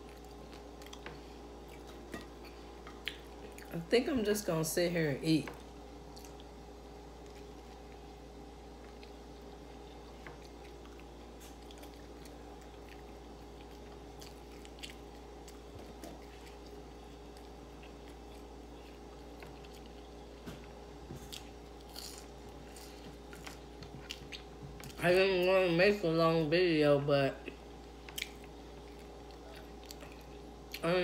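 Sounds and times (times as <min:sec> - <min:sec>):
person chewing food: 0:00.0 - 0:03.7, 0:05.6 - 0:25.0, 0:27.4 - 0:30.9
faint steady hum: 0:00.0 - 0:31.0.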